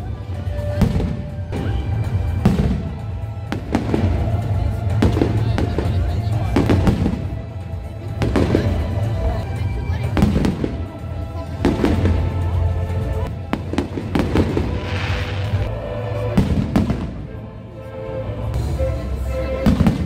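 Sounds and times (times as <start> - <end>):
firework bangs: 0.5 - 9.2, 10.0 - 12.7, 13.3 - 17.3
firework fizzing crackle: 13.5 - 15.7.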